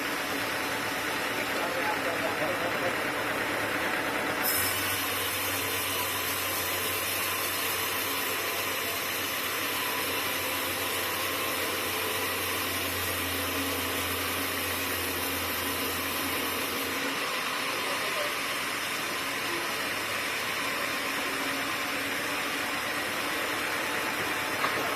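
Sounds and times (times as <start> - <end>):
sawmill machinery hum: 0.0 - 24.9
machinery hiss: 4.4 - 8.2.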